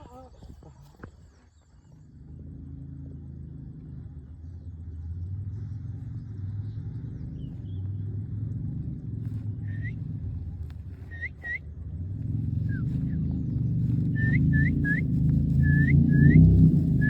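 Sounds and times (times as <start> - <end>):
low engine-like rumble: 0.0 - 17.0.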